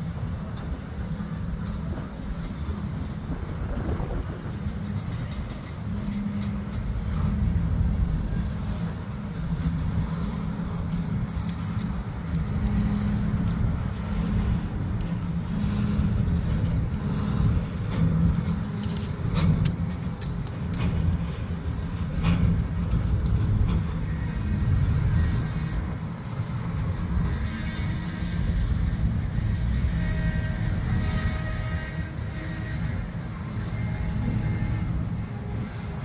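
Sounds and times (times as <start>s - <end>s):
freight train rumbling past: 0.0s - 36.0s
metallic clicks and rattles of wheels: 4.5s - 24.1s.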